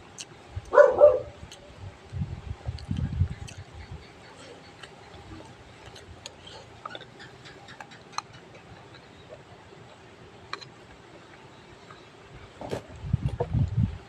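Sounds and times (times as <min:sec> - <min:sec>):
chewing and utensil clicks: 0:02.7 - 0:03.8, 0:04.6 - 0:09.4, 0:10.5 - 0:10.7.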